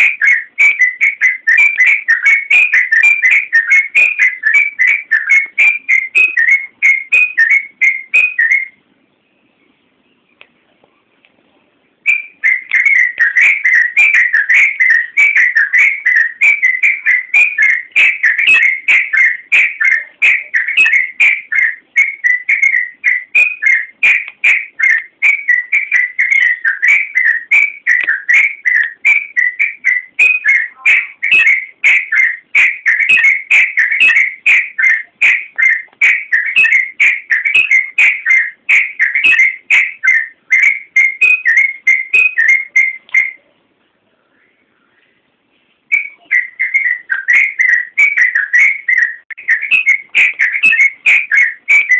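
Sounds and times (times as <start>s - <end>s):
bird whistled song: 0.0s - 10.4s, 12.0s - 43.5s, 45.9s - 51.9s.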